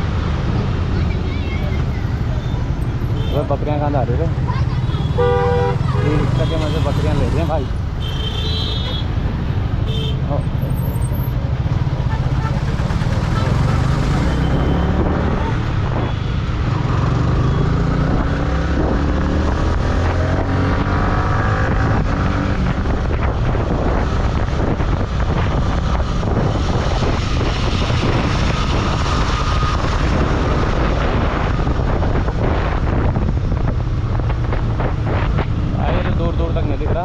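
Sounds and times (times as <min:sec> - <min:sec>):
motorcycle engine running: 0:11.4 - 0:15.9
wind buffeting microphone: 0:18.0 - 0:37.0.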